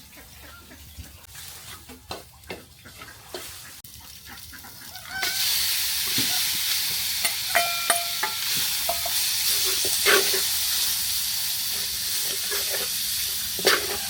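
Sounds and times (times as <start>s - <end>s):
food sizzling in hot oil: 3.4s - 14.0s.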